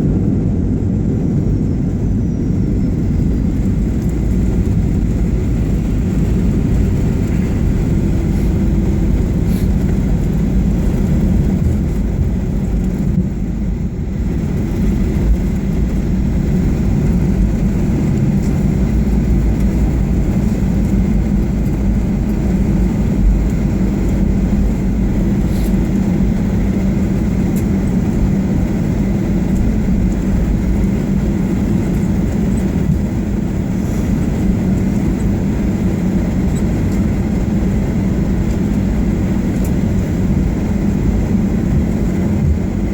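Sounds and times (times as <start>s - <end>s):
jet airliner cabin rumble: 0.0s - 42.9s.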